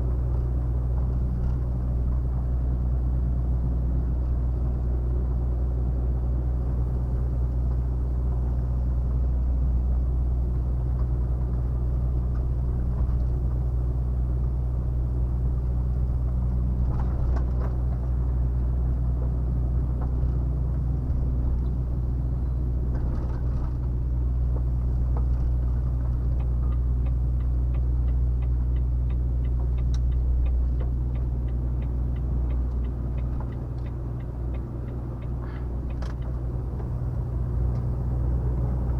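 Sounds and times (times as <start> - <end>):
diesel truck engine drone: 0.0 - 38.9
regular ticking: 25.9 - 38.1.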